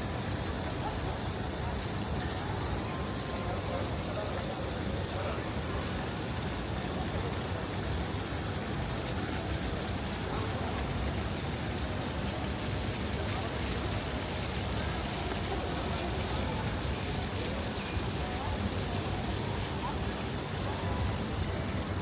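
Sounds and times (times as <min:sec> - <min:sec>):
faint voices of passers-by: 0:00.0 - 0:22.0.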